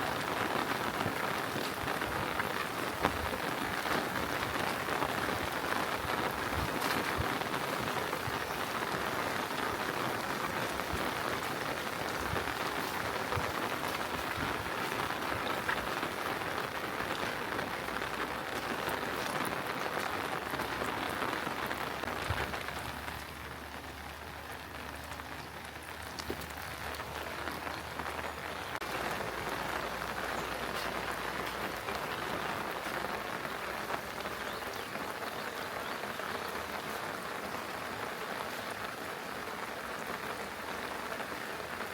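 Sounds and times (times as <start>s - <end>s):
rain falling: 0.0s - 41.9s.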